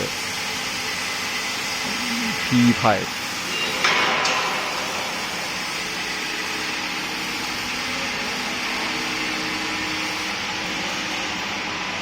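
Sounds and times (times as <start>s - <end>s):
workshop machinery hiss and hum: 0.0s - 12.0s.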